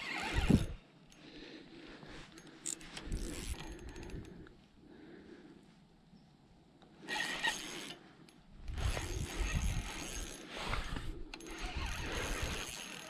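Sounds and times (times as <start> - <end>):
fishing reel clicking: 2.4 - 4.4, 7.1 - 8.0, 8.7 - 10.5, 11.3 - 13.0.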